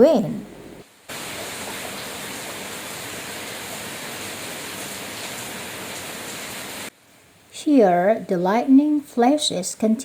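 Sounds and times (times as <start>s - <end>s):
heavy rain: 1.0s - 6.9s.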